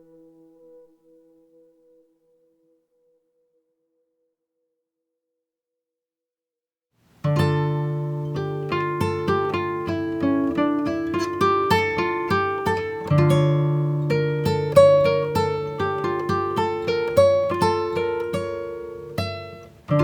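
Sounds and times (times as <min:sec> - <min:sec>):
acoustic guitar picking: 0:07.2 - 0:20.0.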